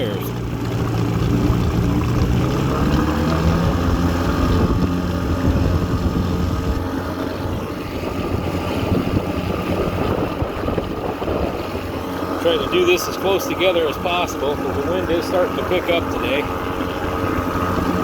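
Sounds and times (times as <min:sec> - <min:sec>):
outboard motor running: 0:00.0 - 0:18.0
wind noise on microphone: 0:01.3 - 0:12.9, 0:16.4 - 0:18.0.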